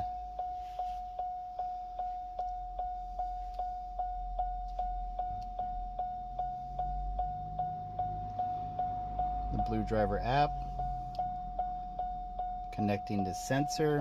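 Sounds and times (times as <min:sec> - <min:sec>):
car warning chime repeating: 0:00.0 - 0:14.0.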